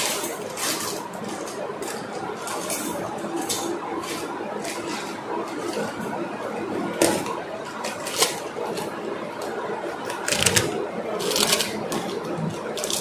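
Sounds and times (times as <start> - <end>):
objects rustling: 0.0 - 6.2.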